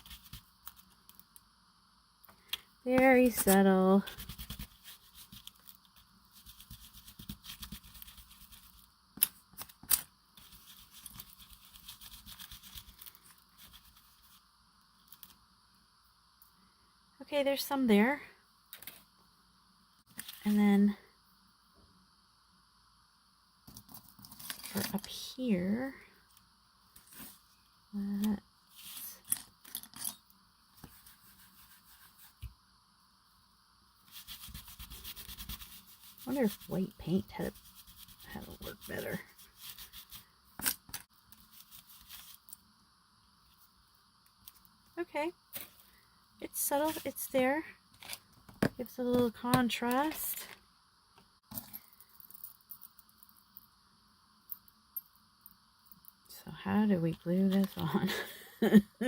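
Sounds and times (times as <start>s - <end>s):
brush scrubbing on paper: 3.1s - 8.8s, 10.4s - 14.4s, 30.8s - 32.5s, 34.0s - 40.3s, 41.4s - 42.4s.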